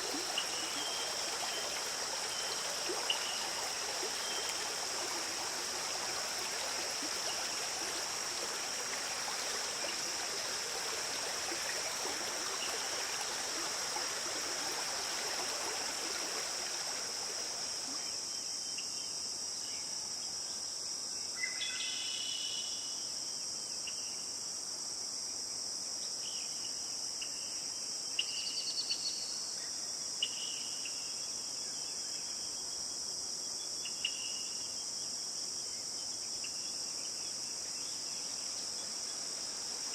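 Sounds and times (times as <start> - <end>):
stream running: 0.0 - 18.5, 37.3 - 39.9
crickets chirping: 0.0 - 39.9.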